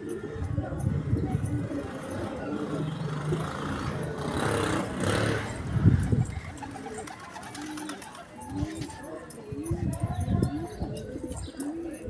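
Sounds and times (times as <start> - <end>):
pigeons cooing: 0.0 - 9.0
motor vehicle passing: 2.1 - 6.4.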